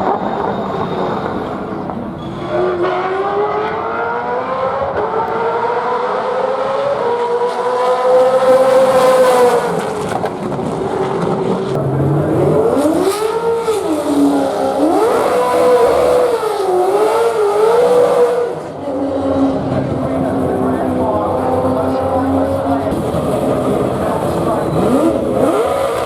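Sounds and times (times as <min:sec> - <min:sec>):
race car engine at full throttle: 0:00.0 - 0:26.0.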